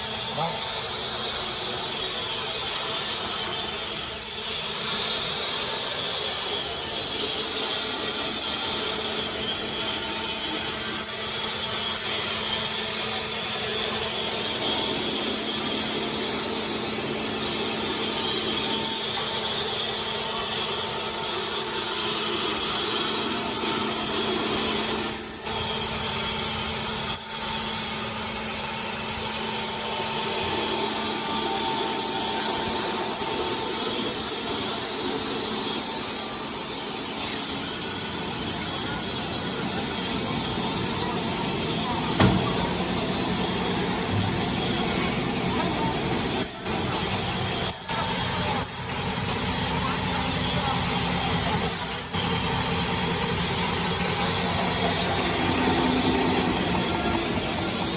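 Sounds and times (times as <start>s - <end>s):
machine whining tones: 0.0s - 57.9s
machine hum and rush: 2.9s - 57.9s.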